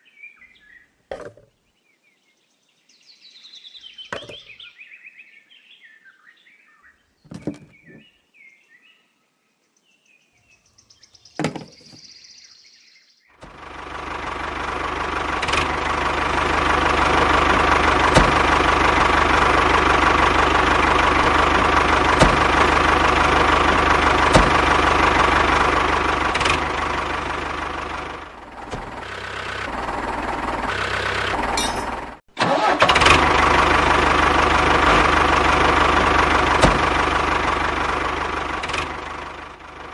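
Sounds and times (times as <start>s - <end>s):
motor running: 13.4s - 39.9s.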